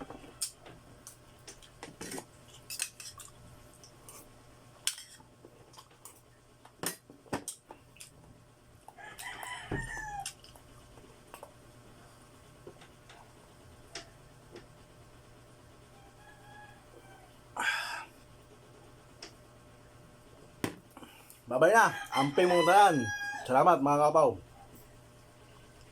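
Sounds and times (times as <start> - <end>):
rooster crowing: 8.9 - 10.4, 15.9 - 18.0, 21.6 - 23.8.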